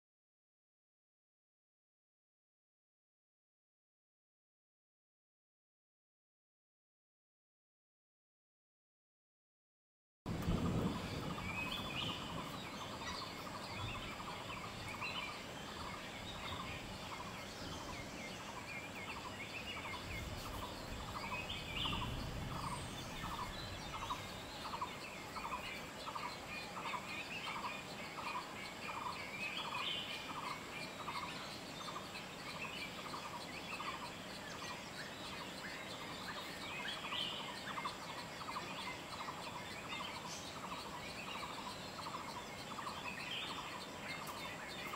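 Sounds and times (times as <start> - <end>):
birds chattering calls: 10.3 - 44.9.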